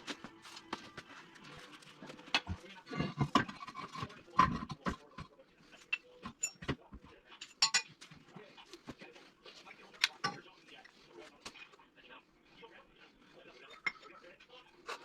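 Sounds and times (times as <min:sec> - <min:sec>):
metal tools knocking and clinking: 0:05.9 - 0:08.0.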